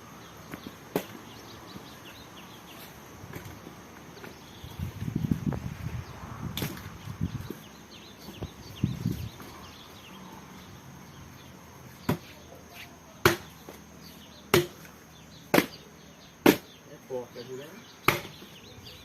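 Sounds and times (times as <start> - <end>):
axe chopping firewood: 13.2 - 13.8, 14.5 - 14.9, 15.5 - 15.8, 16.4 - 16.7, 18.1 - 18.4.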